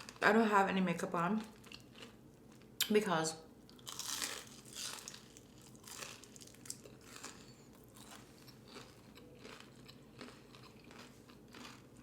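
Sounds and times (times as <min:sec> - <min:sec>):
crisp crunches of chewing: 0:03.7 - 0:12.0.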